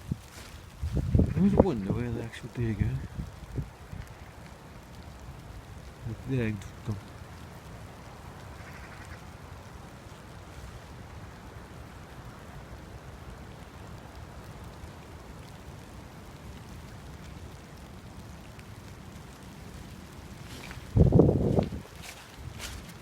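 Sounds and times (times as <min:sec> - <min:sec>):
steady rain hiss: 0:00.0 - 0:23.0
wind rumbling on microphone: 0:00.0 - 0:23.0.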